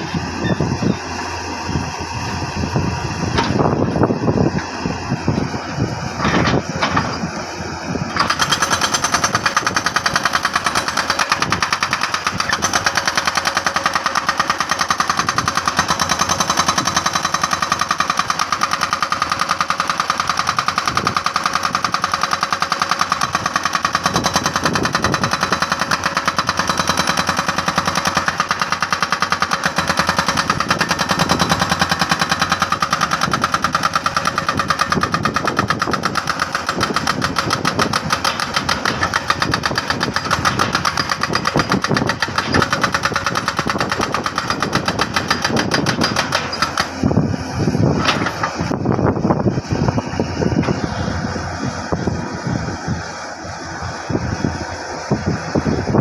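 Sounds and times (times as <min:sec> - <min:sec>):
jackhammer hammering rock: 0:08.1 - 0:48.8.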